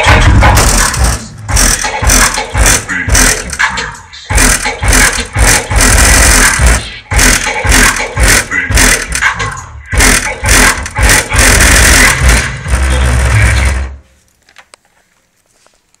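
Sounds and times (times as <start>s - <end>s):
loud distorted bass music: 0.0s - 14.0s.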